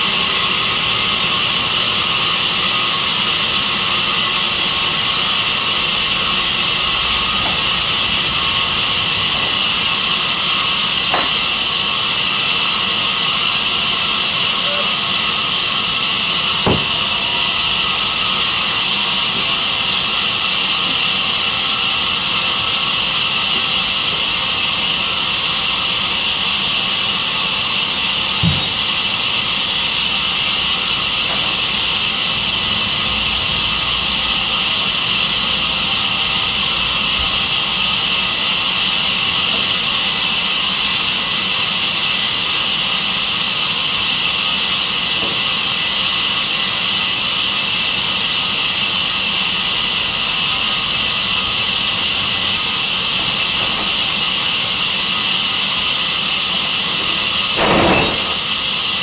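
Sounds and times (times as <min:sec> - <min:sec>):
sawmill saw running: 0:00.0 - 0:59.0
short knocks: 0:16.7 - 0:17.1.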